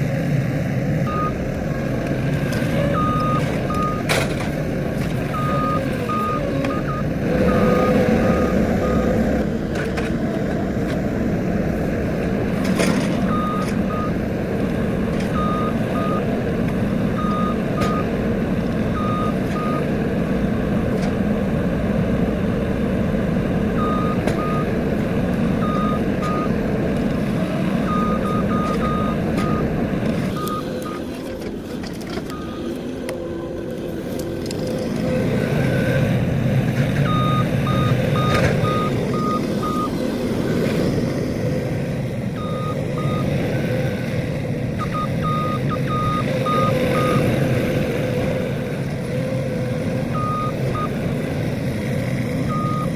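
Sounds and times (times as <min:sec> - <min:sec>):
loader engine running: 0:00.0 - 0:52.9
reversing alarm beeping: 0:01.0 - 0:01.4, 0:02.6 - 0:04.4, 0:05.2 - 0:09.4, 0:13.2 - 0:14.2, 0:15.2 - 0:16.4, 0:17.1 - 0:18.1, 0:18.9 - 0:19.9, 0:23.7 - 0:24.7, 0:25.5 - 0:26.6, 0:27.8 - 0:31.1, 0:32.3 - 0:32.7, 0:37.0 - 0:40.0, 0:42.4 - 0:44.0, 0:44.8 - 0:47.4, 0:50.1 - 0:51.2, 0:52.4 - 0:52.9.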